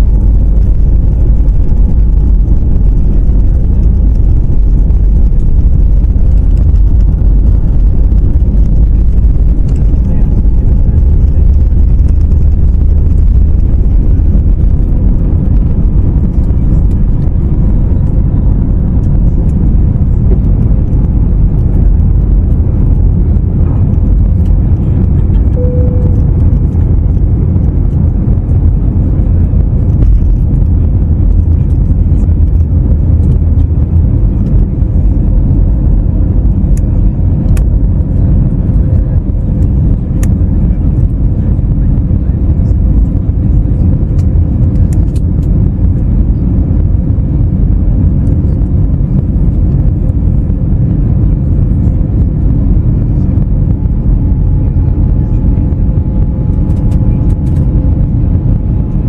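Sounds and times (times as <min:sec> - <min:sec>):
aircraft engines rumbling: 0:00.0 - 0:59.0
faint steady hum: 0:00.0 - 0:59.0
faint tone: 0:25.4 - 0:26.7.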